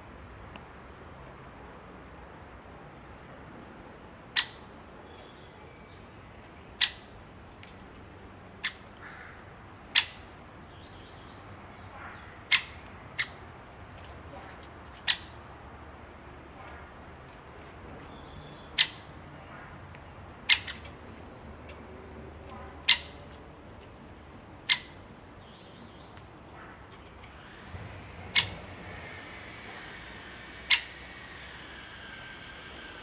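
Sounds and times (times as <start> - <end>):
bird giving sharp calls: 11.8 - 13.8, 14.8 - 15.4, 18.0 - 21.4, 22.6 - 23.3, 24.6 - 25.6, 26.5 - 32.9.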